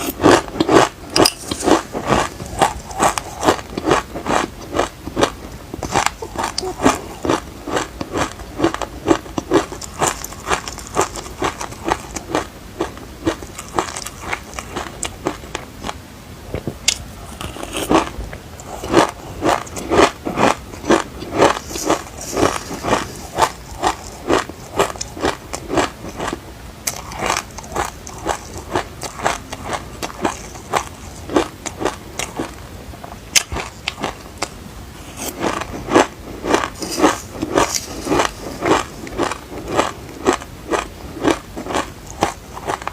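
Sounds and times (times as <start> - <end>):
chewing crunchy seeds: 0.0 - 16.0, 16.9 - 42.9.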